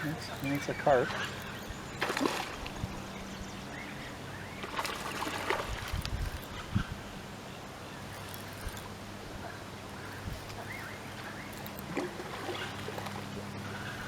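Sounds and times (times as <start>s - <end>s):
fish splashing in water: 0.0s - 3.0s, 4.5s - 6.7s, 11.2s - 14.0s.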